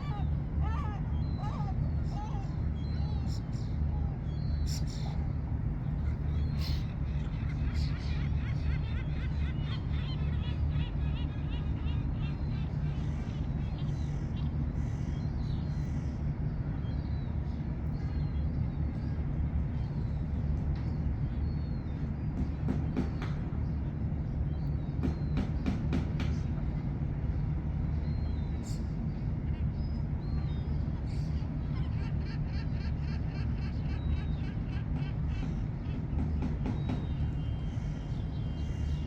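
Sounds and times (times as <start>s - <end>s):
ship engine drone: 0.0s - 15.4s.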